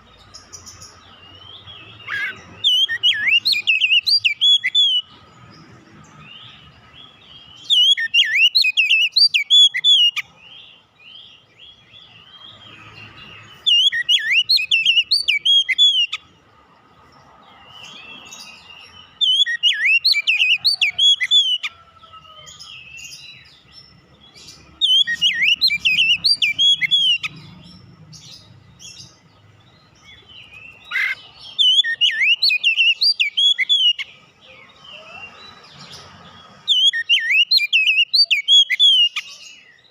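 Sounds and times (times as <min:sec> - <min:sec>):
soft bird twittering: 0:00.0 - 0:16.4, 0:17.0 - 0:39.9
bird whistled song phrases: 0:02.0 - 0:05.1, 0:07.5 - 0:10.2, 0:13.6 - 0:16.2, 0:19.2 - 0:23.6, 0:24.8 - 0:27.4, 0:30.4 - 0:35.4, 0:36.7 - 0:39.7.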